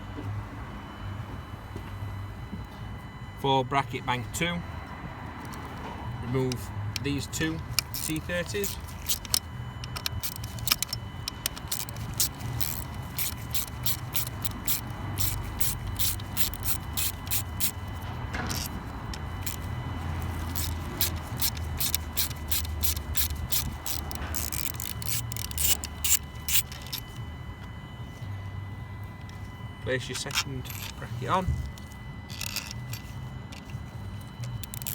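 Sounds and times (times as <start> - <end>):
steady low hum: 0.0 - 34.9
hand ratchet clicking: 6.4 - 27.2, 30.2 - 34.9.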